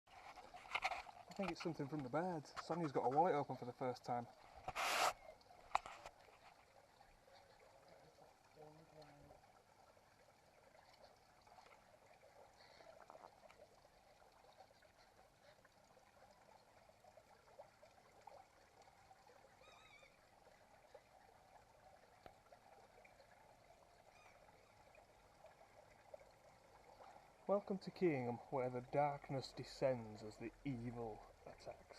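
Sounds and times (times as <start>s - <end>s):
bird warbling call: 19.6s - 20.2s, 24.1s - 24.8s.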